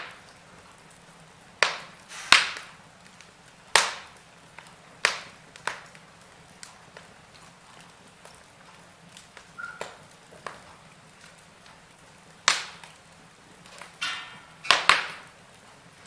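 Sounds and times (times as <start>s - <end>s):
hissing sputter of fire: 0.0s - 16.0s
wood fire crackling: 0.0s - 16.0s.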